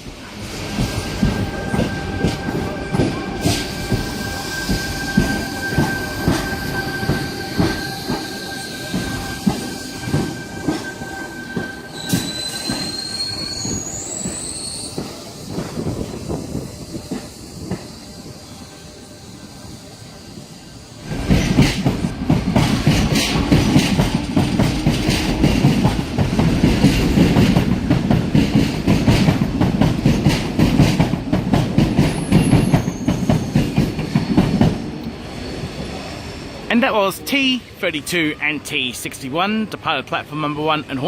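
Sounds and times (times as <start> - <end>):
train high whine: 0.0 - 39.9
high-pitched squeal: 0.5 - 15.5
train wheels clunking over rail joints: 21.0 - 35.1.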